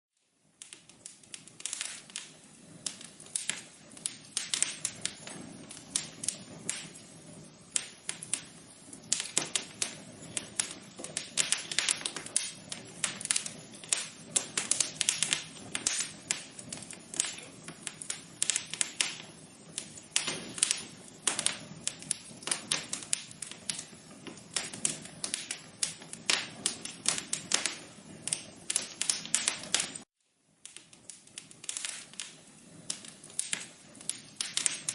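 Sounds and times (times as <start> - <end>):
low hiss of burning: 0.2 - 34.9
wood fire crackling: 0.2 - 34.9.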